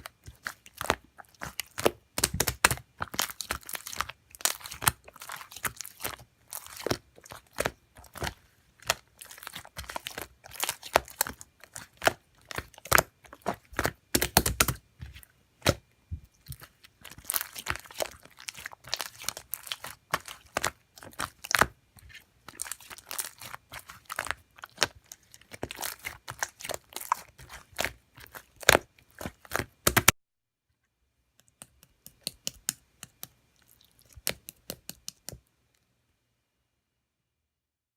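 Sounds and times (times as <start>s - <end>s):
slime squished by hand: 0.0s - 30.2s.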